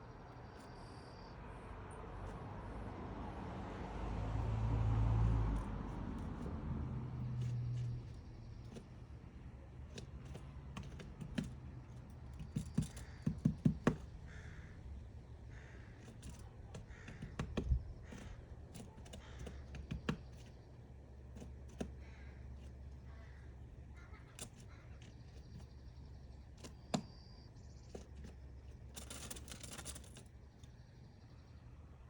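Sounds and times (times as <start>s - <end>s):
low vehicle hum: 0.0s - 32.0s
woodpecker tapping wood: 9.8s - 27.2s.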